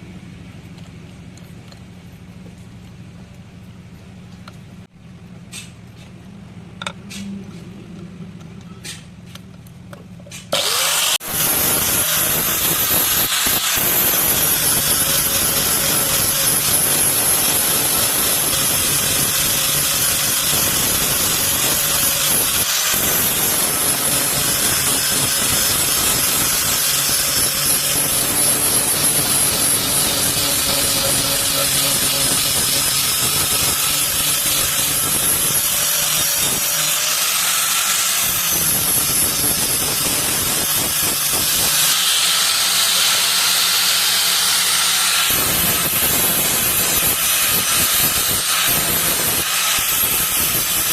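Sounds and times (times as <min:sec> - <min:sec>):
power grinder grinding metal: 0:10.4 - 0:50.9.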